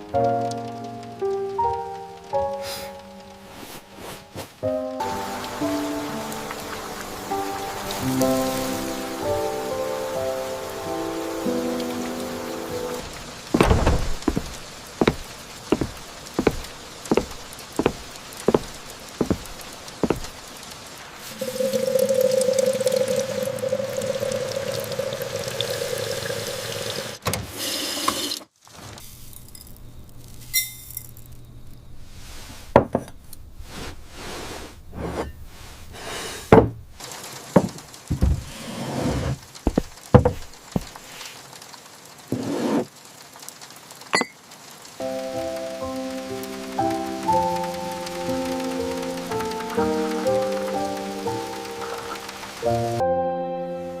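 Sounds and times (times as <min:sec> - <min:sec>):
running water: 0:03.0 - 0:27.2, 0:37.0 - 0:53.0
evenly spaced knocks: 0:13.5 - 0:20.4, 0:37.6 - 0:38.5, 0:39.6 - 0:41.0
scattered clicks and knocks: 0:39.5 - 0:41.0.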